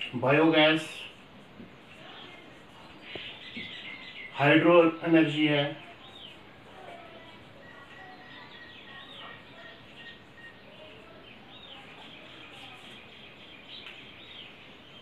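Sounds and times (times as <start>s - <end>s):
faint bird chirps: 2.0s - 15.0s.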